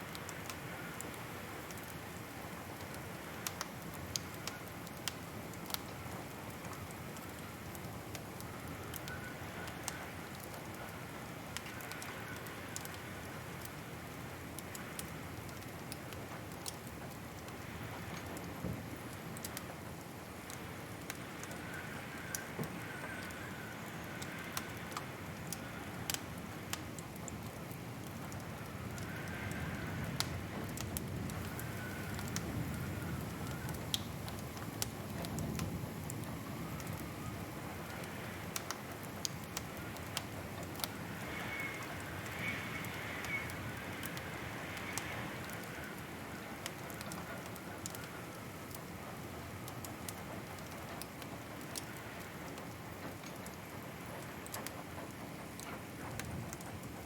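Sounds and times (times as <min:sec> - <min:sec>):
wood fire crackling: 0:00.0 - 0:57.0
faint wavering whistle: 0:41.2 - 0:43.6.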